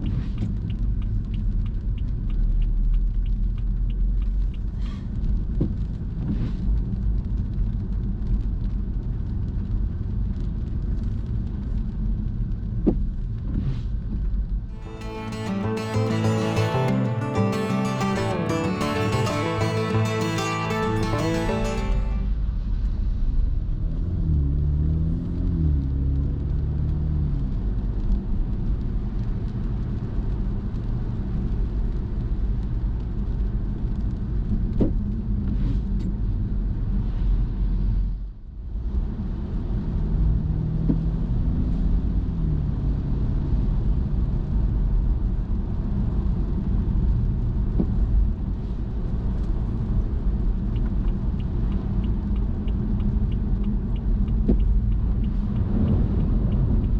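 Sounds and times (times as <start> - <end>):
car road and engine rumble: 23.1 - 56.9.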